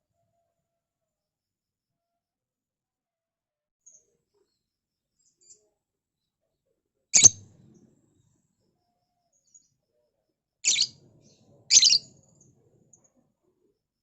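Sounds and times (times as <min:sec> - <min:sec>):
lovebird shrill calls: 0:07.2 - 0:07.4, 0:10.7 - 0:11.0, 0:11.7 - 0:12.1.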